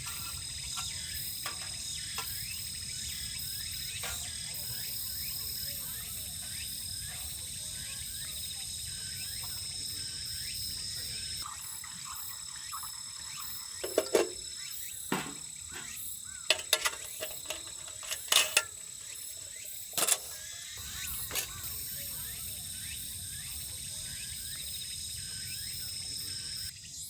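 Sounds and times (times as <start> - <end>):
insect chorus chirring: 0.0 - 27.0
sharp knocks and clicks: 13.8 - 14.5, 15.1 - 18.9.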